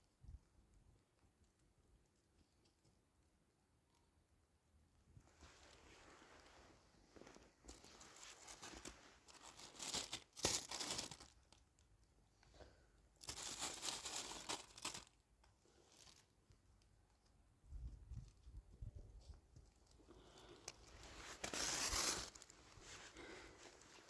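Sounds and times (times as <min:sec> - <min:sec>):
plastic sheeting crinkling: 0:05.3 - 0:11.3, 0:13.2 - 0:15.2, 0:20.2 - 0:24.0.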